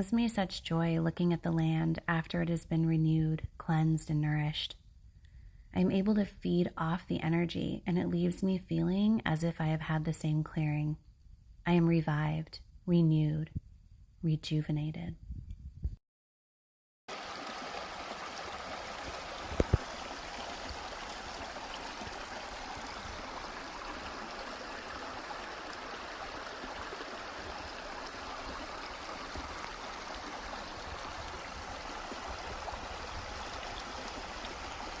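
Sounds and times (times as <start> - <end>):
flowing water rushing: 17.1 - 35.0.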